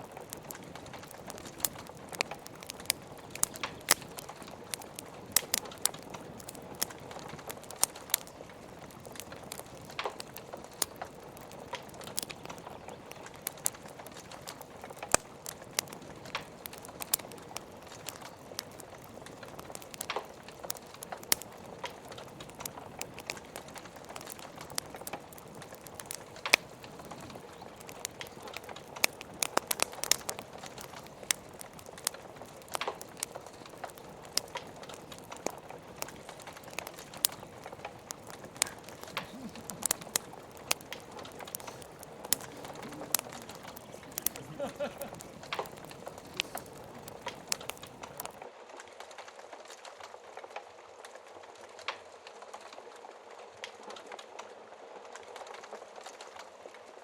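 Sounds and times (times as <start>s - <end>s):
rain hissing: 0.0s - 48.4s
wood fire crackling: 0.0s - 57.0s.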